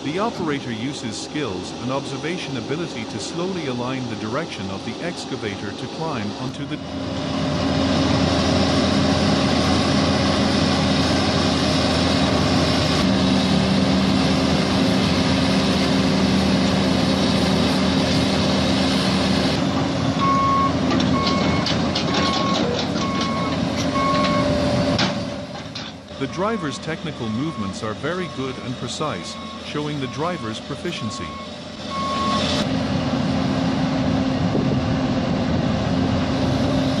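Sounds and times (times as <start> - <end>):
excavator diesel engine: 0.0 - 37.0
backup alarm beeping: 20.2 - 24.7, 26.3 - 32.5.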